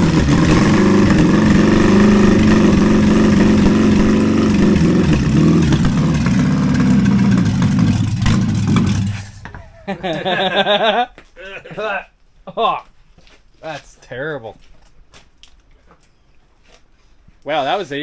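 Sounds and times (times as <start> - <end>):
petrol engine running loud: 0.0 - 9.6.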